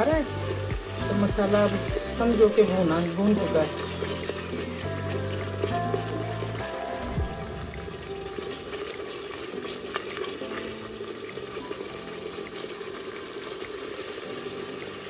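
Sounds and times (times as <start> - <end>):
masala sizzling in oil: 0.0 - 15.0.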